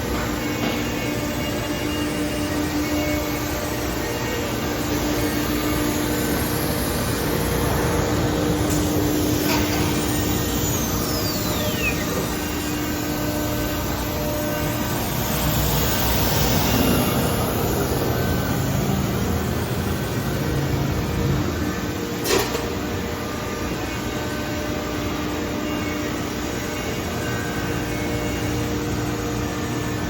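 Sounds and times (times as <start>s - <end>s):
router machine roar: 0.0s - 30.0s
whine falling in pitch: 9.4s - 13.0s.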